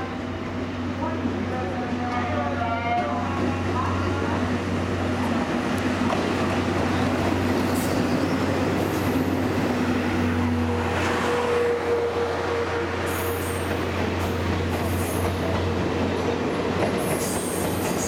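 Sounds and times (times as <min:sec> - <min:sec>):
train low hum: 0:00.0 - 0:18.0
high train wheel squeal: 0:06.9 - 0:09.4, 0:10.6 - 0:15.4, 0:17.0 - 0:18.0.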